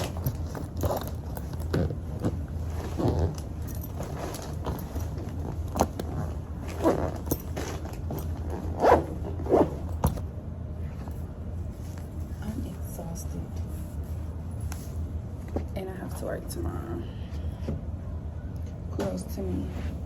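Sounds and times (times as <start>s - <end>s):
zipper: 0.0s - 10.2s
clothes and bags rustling: 0.0s - 16.1s
steady low hum: 0.0s - 20.0s.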